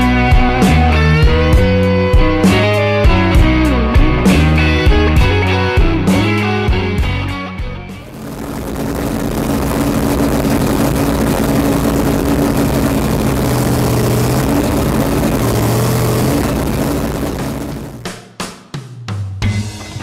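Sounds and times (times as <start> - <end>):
car engine idling: 8.0 - 18.0
supercharger hiss: 8.1 - 18.0.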